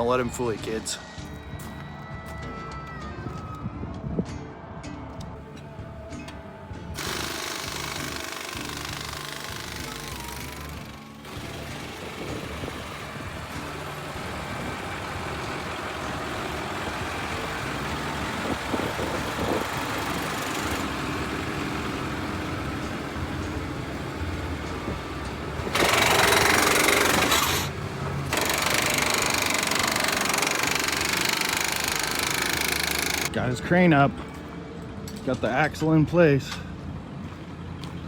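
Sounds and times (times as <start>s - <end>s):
truck engine running: 6.3s - 35.0s.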